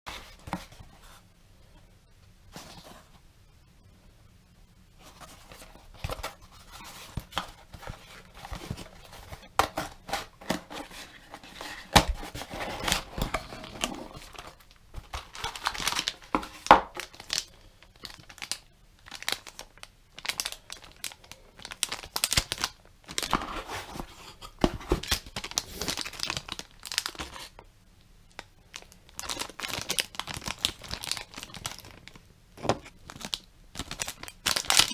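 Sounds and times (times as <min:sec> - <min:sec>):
packaging crinkling and tearing: 0:07.1 - 0:24.0, 0:24.9 - 0:27.6, 0:28.3 - 0:34.9.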